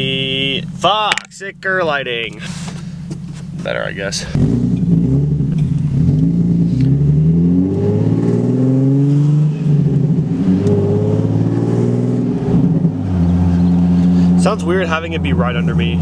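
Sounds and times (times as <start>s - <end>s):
car exhaust accelerating: 0.0s - 16.0s.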